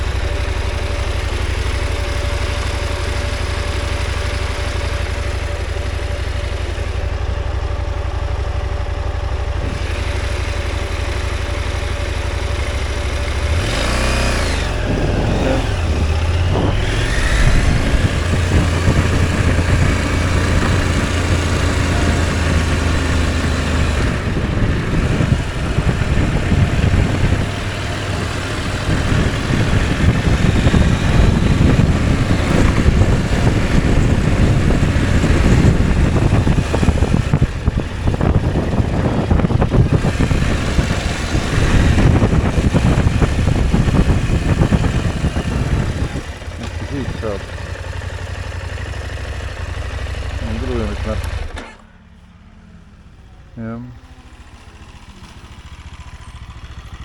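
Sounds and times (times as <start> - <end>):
motorcycle engine revving: 0.0 - 57.0
rumble on microphone: 14.7 - 22.4.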